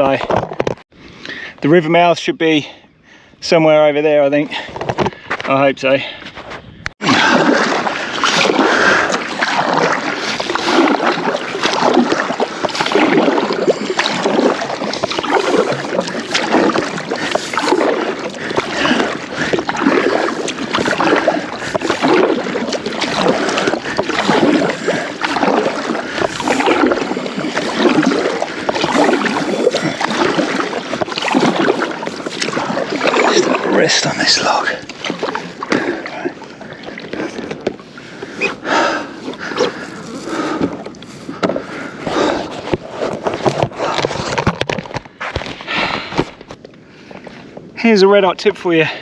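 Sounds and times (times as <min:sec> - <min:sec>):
paddle strokes splashing water: 0:07.0 - 0:47.7.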